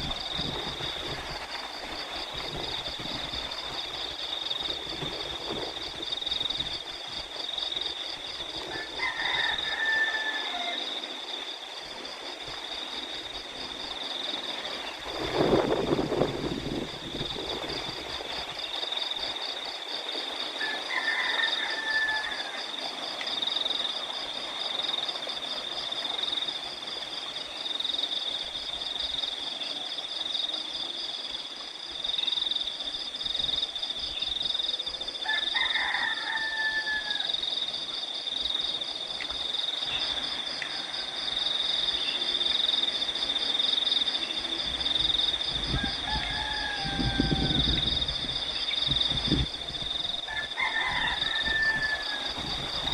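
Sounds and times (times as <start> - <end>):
crickets chirring: 0.0 - 52.9
rooster crowing: 8.6 - 11.0, 20.6 - 22.9, 35.2 - 37.7, 45.4 - 52.9.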